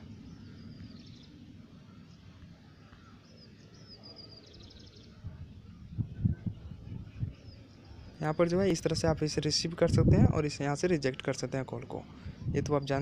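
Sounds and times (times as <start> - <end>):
faint high bird chirps: 0.0 - 5.2
low background noise: 0.0 - 13.0.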